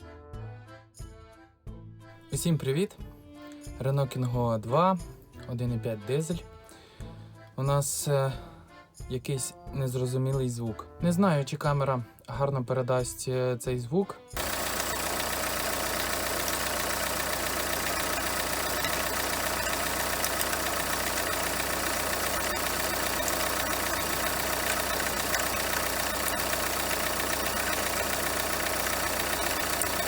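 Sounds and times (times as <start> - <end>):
diesel engine idling: 14.4 - 30.0.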